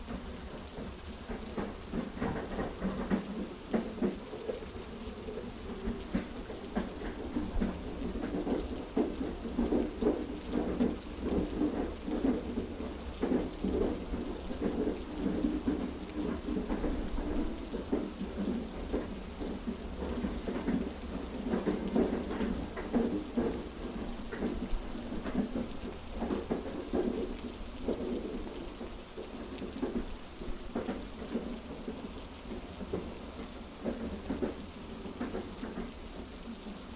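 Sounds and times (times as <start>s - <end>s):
heavy rain falling: 0.0s - 36.9s
train carriage rumble: 0.0s - 36.9s
train wheels clacking over rail joints: 0.0s - 36.9s.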